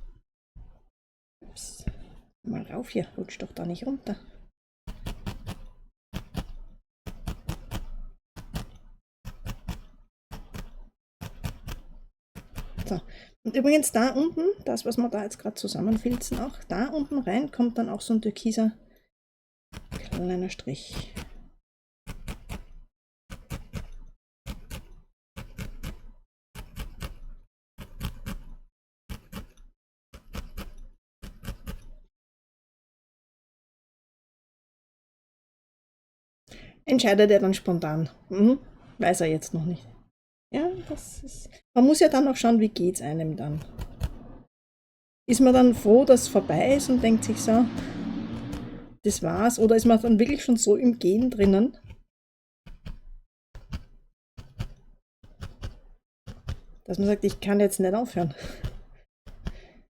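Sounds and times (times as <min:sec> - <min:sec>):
felting needle poking wool: 0:04.3 - 0:17.8, 0:19.8 - 0:32.1, 0:42.2 - 0:44.4, 0:45.3 - 0:52.1, 0:52.7 - 0:59.9.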